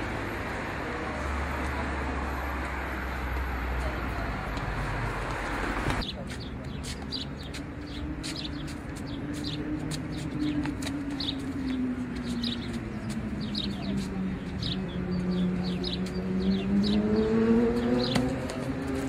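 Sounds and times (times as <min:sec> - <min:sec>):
small birds chirping: 0:06.0 - 0:19.0.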